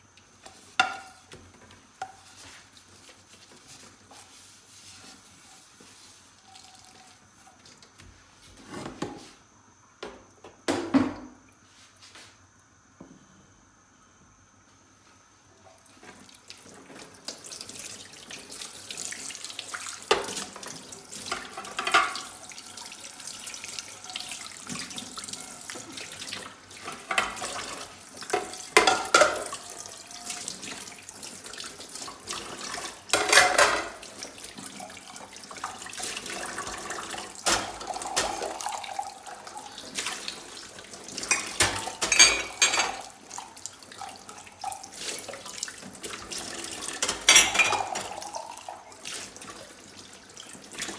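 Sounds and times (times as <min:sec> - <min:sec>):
dishes clinking: 0:00.8 - 0:01.2, 0:21.3 - 0:22.4, 0:26.9 - 0:30.3, 0:33.1 - 0:34.0, 0:37.4 - 0:39.0, 0:41.2 - 0:43.2, 0:46.9 - 0:48.5
tap water running into sink: 0:16.1 - 0:50.9.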